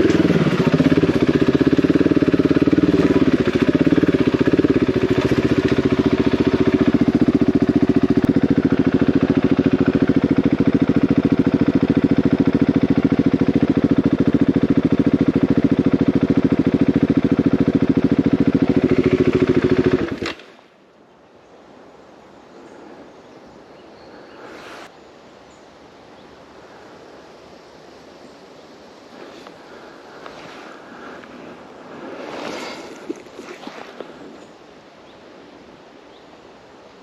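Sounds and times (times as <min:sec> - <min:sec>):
motorcycle engine idling: 0:00.0 - 0:20.4, 0:29.1 - 0:34.6
faint wind: 0:00.0 - 0:37.0.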